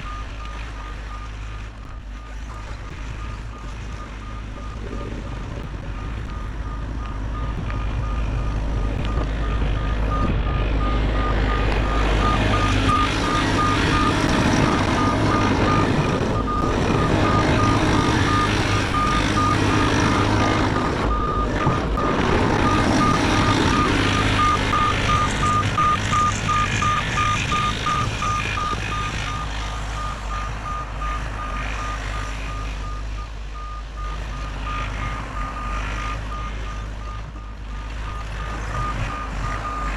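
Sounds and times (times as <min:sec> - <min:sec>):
excavator diesel engine running: 0:00.0 - 0:39.9
travel alarm beeping rapidly: 0:15.0 - 0:31.2.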